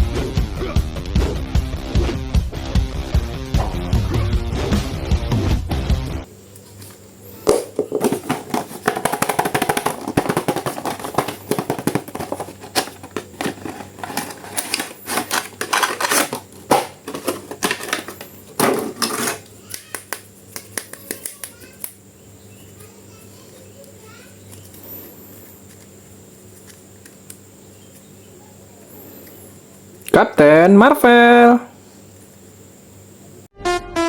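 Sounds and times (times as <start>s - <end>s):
plastic packaging clicking and crackling: 7.9s - 21.9s.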